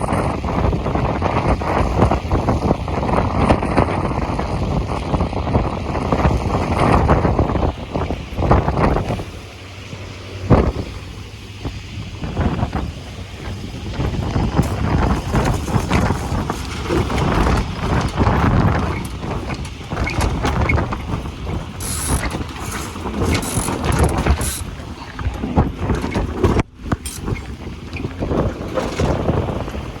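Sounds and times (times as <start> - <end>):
wind buffeting microphone: 0.0 - 30.0
boat gear clicking and knocking: 13.8 - 30.0.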